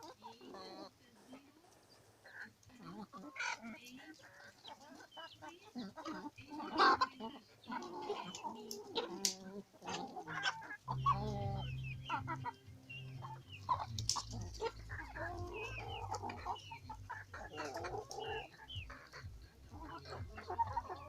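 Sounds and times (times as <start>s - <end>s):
chickens clucking: 0.0s - 21.0s
low steady hum: 8.9s - 21.0s.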